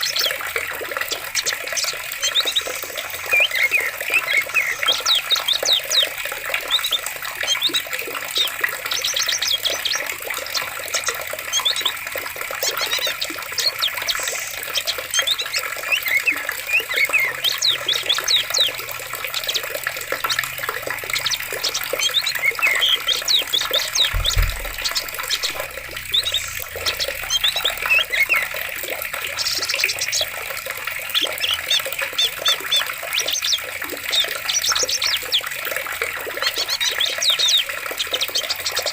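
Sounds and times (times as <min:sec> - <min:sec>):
birds chirping and trilling: 0:00.0 - 0:38.9
flowing water: 0:00.0 - 0:38.9
low thump: 0:24.0 - 0:27.0.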